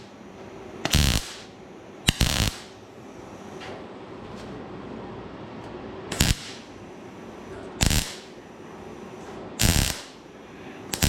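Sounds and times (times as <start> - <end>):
welding bursts on steel: 0.8 - 2.8, 6.1 - 6.7, 7.8 - 8.4, 9.6 - 10.2.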